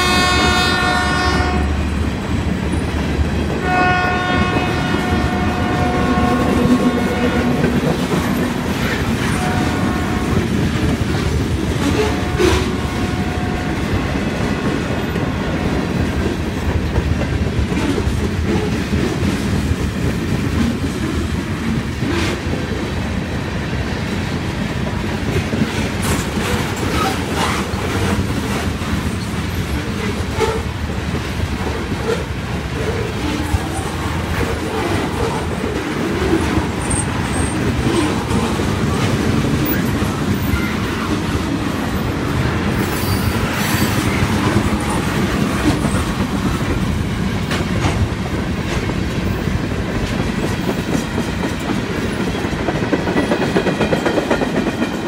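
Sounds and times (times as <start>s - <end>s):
train horn: 0.0s - 2.0s, 3.6s - 10.9s, 11.7s - 15.8s
train rumble: 0.0s - 55.0s
train wheels clicking over rail joints: 0.0s - 55.0s.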